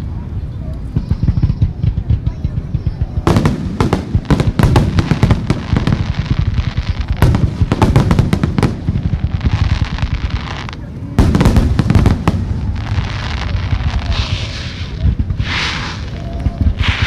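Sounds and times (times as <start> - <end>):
crackling fireworks bangs: 0.3 - 17.0
fireworks launch thumps and bursts: 14.0 - 17.0.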